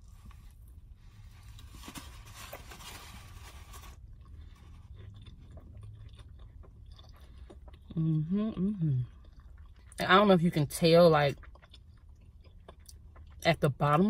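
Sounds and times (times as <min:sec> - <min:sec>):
chewing fried chicken: 0:03.2 - 0:14.0.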